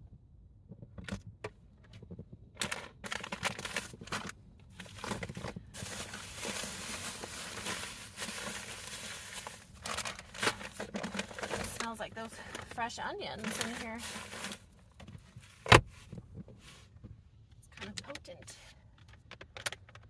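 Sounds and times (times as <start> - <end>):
packaging crinkling and rustling: 2.6 - 16.8.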